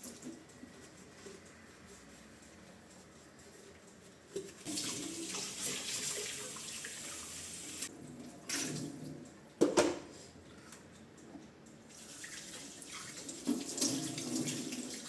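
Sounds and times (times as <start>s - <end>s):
tap water running into sink: 11.9s - 15.0s.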